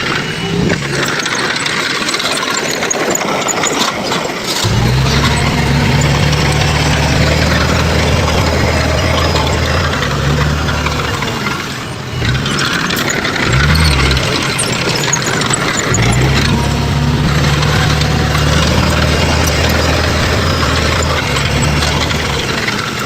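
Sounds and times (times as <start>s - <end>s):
broad mechanical noise: 0.0s - 23.0s
diesel engine of heavy machinery: 0.0s - 23.0s.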